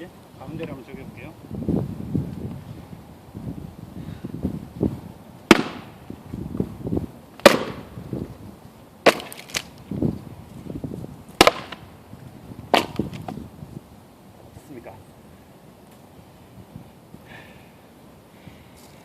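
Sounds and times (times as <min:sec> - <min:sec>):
axe chopping wood: 0:05.5 - 0:05.9, 0:07.4 - 0:07.9, 0:09.0 - 0:09.7, 0:11.4 - 0:11.8, 0:12.7 - 0:13.4.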